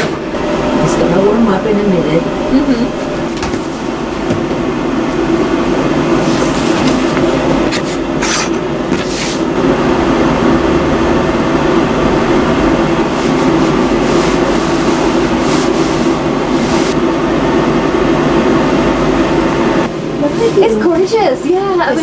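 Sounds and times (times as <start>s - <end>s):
hood hair dryer running: 0.0s - 22.0s.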